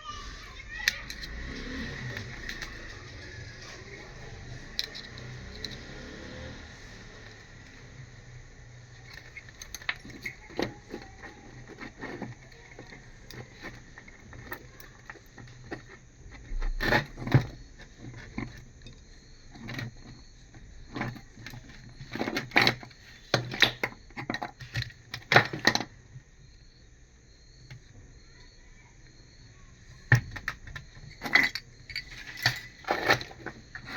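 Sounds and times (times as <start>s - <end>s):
metal parts clinking: 0.6s - 6.0s, 8.8s - 18.9s, 30.0s - 33.9s.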